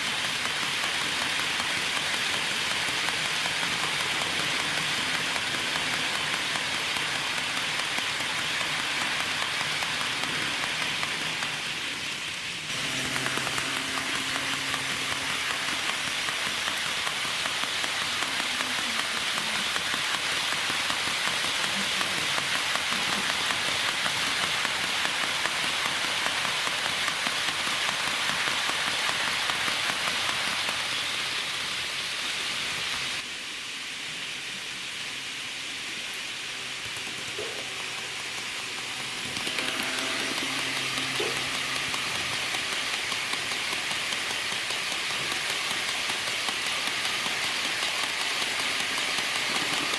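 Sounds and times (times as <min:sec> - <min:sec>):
model train wheels clattering: 0:00.0 - 0:33.3, 0:35.7 - 0:49.9.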